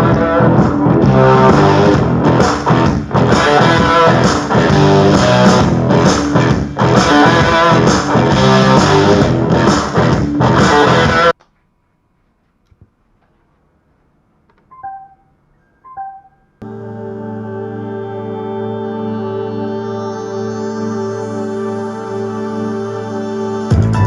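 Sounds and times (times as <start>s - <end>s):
rock music with electric guitar: 0.0s - 11.3s.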